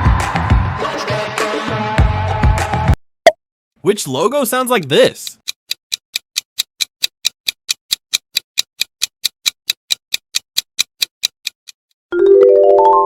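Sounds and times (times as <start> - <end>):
clock-like timer ticks: 4.7 - 12.0.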